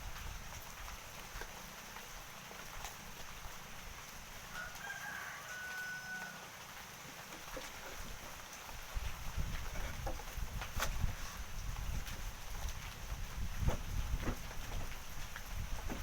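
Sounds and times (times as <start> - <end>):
rooster crowing: 4.5 - 6.5.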